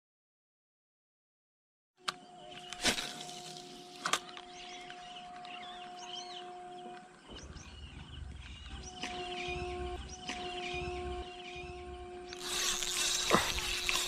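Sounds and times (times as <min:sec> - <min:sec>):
small birds chirping: 0:02.1 - 0:14.0
steady low hum: 0:02.3 - 0:14.0.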